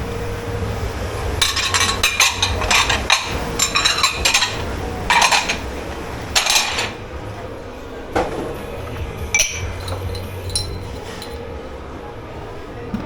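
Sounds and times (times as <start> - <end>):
steady low hum: 0.0 - 13.0
crockery and cutlery clattering: 1.3 - 7.0, 8.2 - 11.5.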